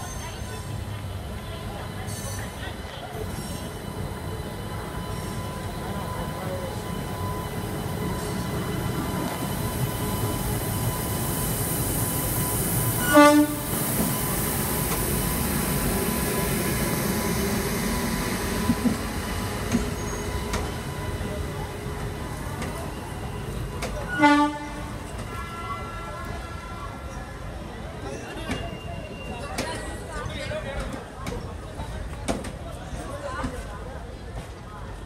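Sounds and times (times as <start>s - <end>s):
train wheels rumbling on rails: 0.0s - 35.0s
train horn blast: 13.0s - 13.8s, 24.1s - 27.1s.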